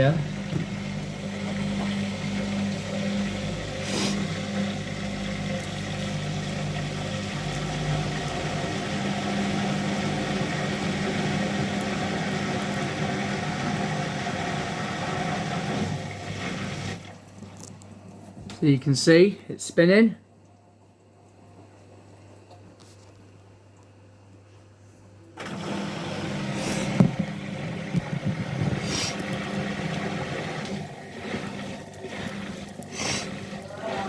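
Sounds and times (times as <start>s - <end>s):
washing machine spinning: 0.0s - 19.3s, 25.2s - 34.0s.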